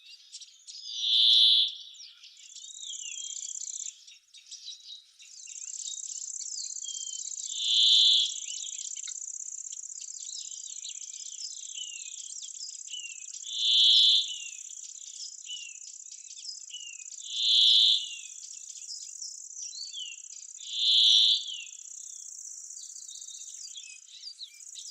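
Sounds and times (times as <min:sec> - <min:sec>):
small birds chirping: 0:00.0 - 0:24.9
crickets trilling: 0:05.6 - 0:10.2, 0:13.4 - 0:15.4, 0:20.4 - 0:23.5.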